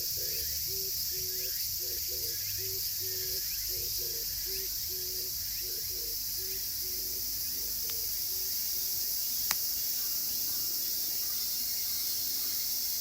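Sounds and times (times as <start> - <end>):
cicada chorus: 0.0 - 13.0
wood fire popping: 9.4 - 9.7.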